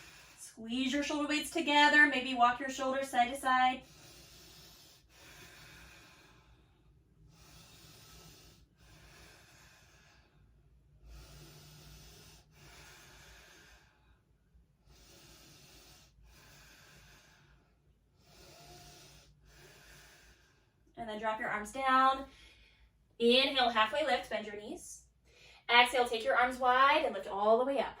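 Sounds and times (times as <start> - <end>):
slow deep breathing: 0.0 - 0.6, 3.8 - 21.0, 22.2 - 23.2, 25.1 - 25.7.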